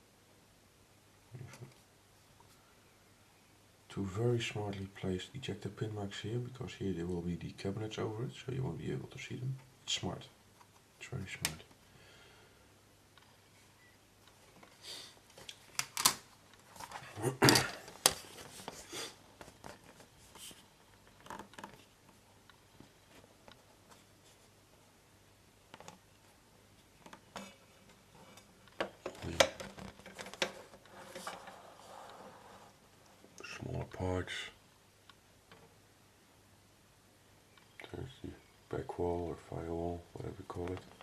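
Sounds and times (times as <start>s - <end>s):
soft rustle: 13.2s - 34.1s.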